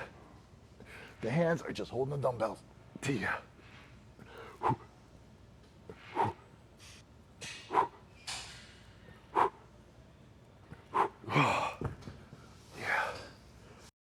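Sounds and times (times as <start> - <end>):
man's forceful breaths: 4.2 - 4.9, 5.9 - 6.4, 7.7 - 8.0, 9.2 - 9.6, 10.7 - 11.8.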